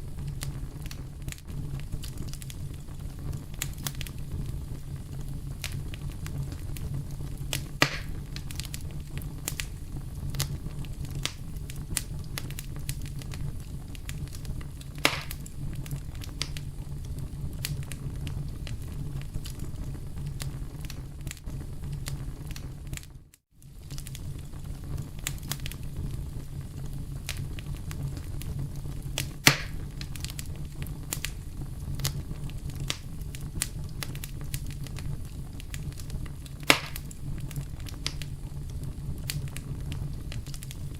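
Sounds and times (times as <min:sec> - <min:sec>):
campfire crackling: 0:00.0 - 0:40.9
sharp pops from burning wood: 0:00.3 - 0:16.7, 0:22.0 - 0:24.2, 0:25.2 - 0:25.8, 0:27.1 - 0:31.4, 0:32.0 - 0:40.9.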